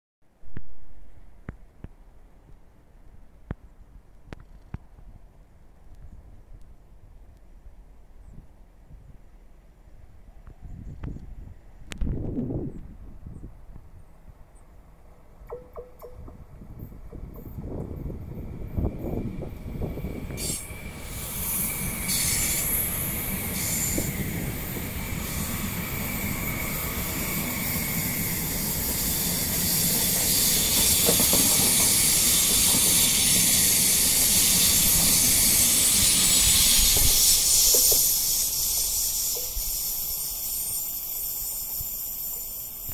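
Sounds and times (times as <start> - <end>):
train wheels rushing on rails: 15.5 - 42.9.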